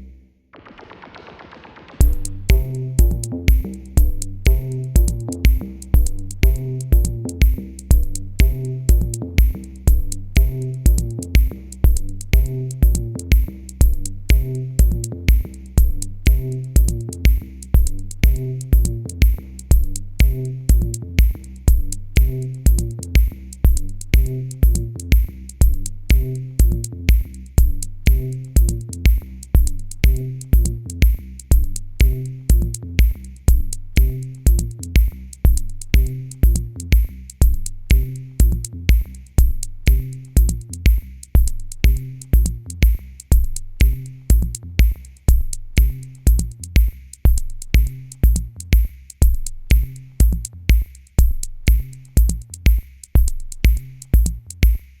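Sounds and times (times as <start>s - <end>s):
electronic music: 0.0s - 25.3s
drum-machine beat: 0.6s - 55.0s
repeating bass line: 2.0s - 46.6s.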